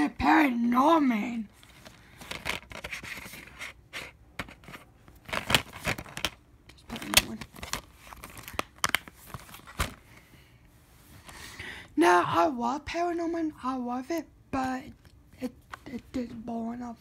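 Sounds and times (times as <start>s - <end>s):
packaging rustling: 1.5s - 10.2s.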